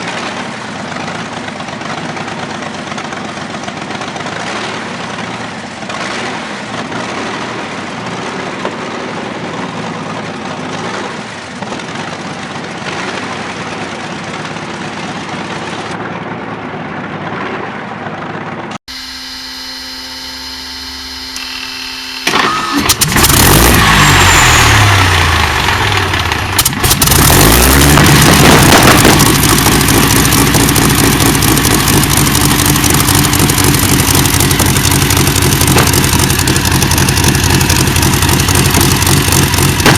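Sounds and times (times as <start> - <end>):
large engine running: 0.0 - 39.9
large engine cranking and starting: 21.4 - 39.9.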